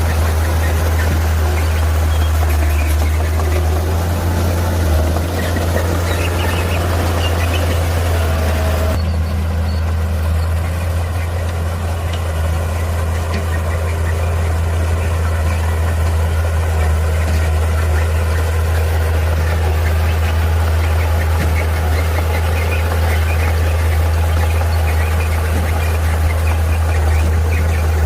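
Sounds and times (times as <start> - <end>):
heavy diesel engine droning: 0.0 - 28.0.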